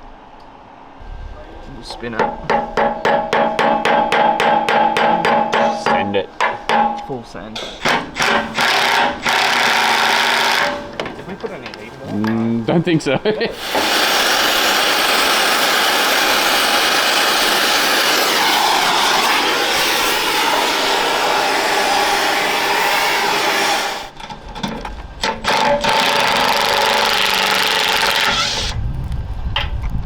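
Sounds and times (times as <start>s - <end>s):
impact wrench running: 7.6s - 11.2s, 13.6s - 24.2s, 25.2s - 28.8s.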